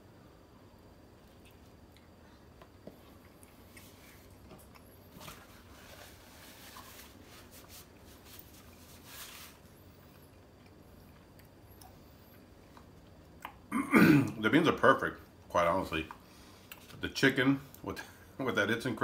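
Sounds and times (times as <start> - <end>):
chewing crunchy food: 1.2 - 7.3, 9.6 - 13.7.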